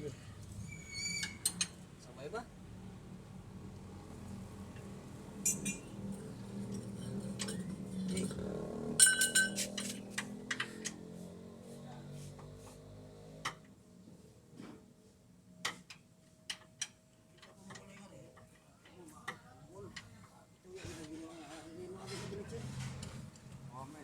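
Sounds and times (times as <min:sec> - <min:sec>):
loud ringing metallic clink: 0:05.4 - 0:05.9, 0:09.0 - 0:09.8
metal tools clinking: 0:05.4 - 0:06.0, 0:06.6 - 0:08.3, 0:09.0 - 0:10.1.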